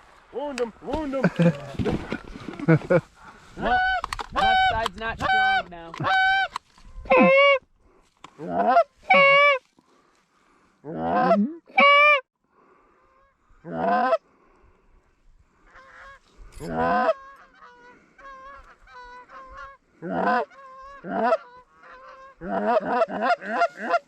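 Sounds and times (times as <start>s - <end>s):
geese honking: 3.5s - 7.6s, 8.4s - 9.6s, 15.6s - 24.0s.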